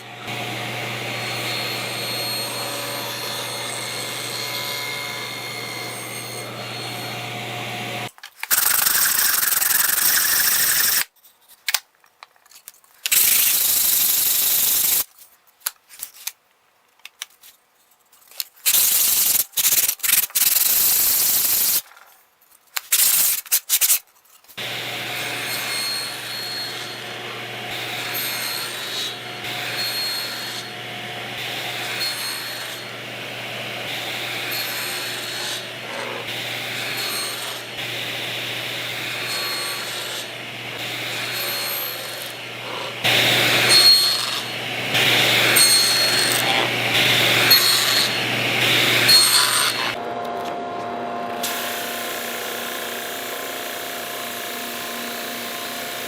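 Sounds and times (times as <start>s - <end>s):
low hum of power sander: 0.0s - 8.1s, 24.6s - 56.0s
wood sanding hiss: 8.5s - 11.1s.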